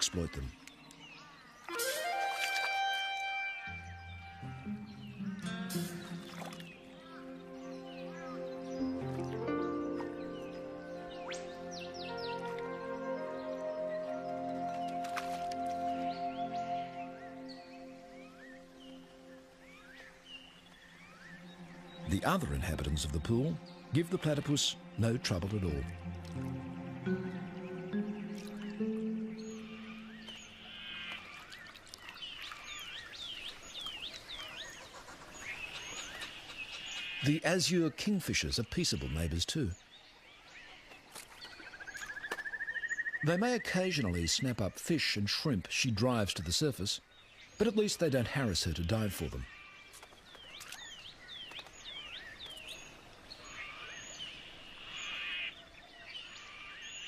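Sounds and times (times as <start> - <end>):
birds calling: 0.0 - 57.0
outdoor background noise: 0.0 - 57.0.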